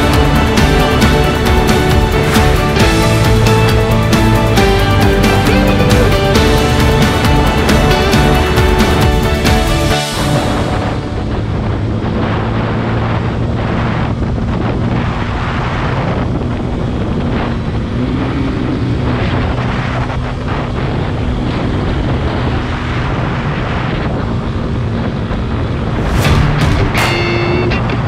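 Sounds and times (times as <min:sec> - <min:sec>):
motorcycle engine running: 0:00.0 - 0:28.0
wind buffeting microphone: 0:06.7 - 0:28.0.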